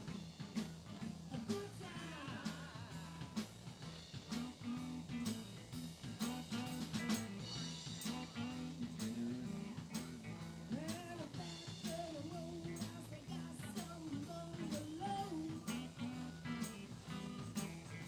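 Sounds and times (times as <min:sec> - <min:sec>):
bass and guitar: 0:00.0 - 0:18.0
drum kit with rimshots: 0:00.0 - 0:18.0.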